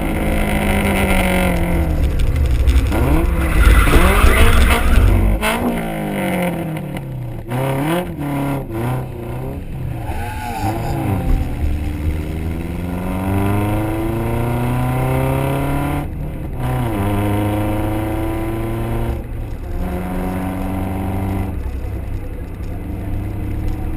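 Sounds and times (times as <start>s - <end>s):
car engine accelerating: 0.0s - 23.9s
gear upshifts: 0.7s - 5.9s.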